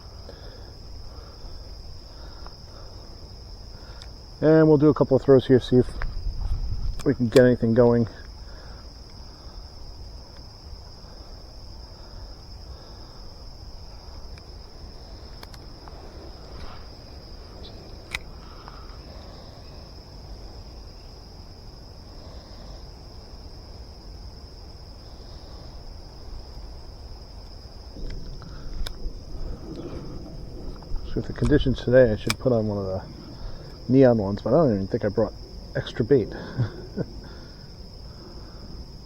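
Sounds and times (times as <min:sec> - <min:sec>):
insects chirping: 0:00.0 - 0:39.0
low outdoor rumble: 0:00.0 - 0:39.0
faint clicks: 0:03.8 - 0:04.2, 0:15.2 - 0:19.1, 0:28.0 - 0:32.6.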